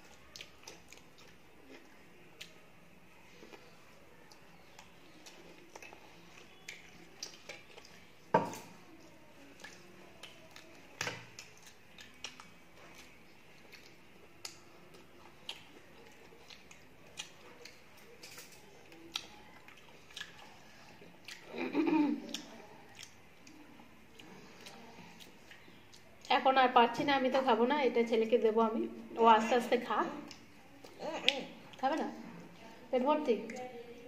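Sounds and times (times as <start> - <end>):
chewing burger: 0.0 - 26.3
mouth clicks and smacks: 21.2 - 26.2.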